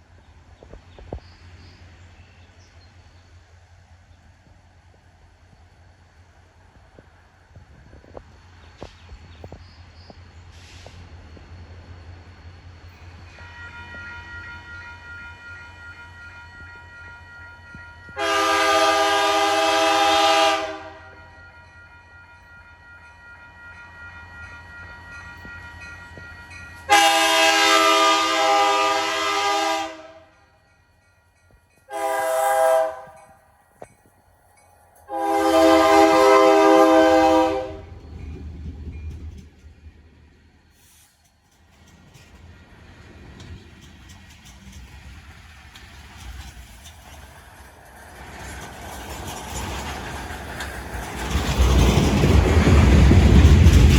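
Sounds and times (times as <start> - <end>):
low train rumble: 0.0 - 53.9
locomotive air horn blasts: 13.4 - 21.4, 26.9 - 30.3, 31.9 - 33.4, 35.1 - 37.9.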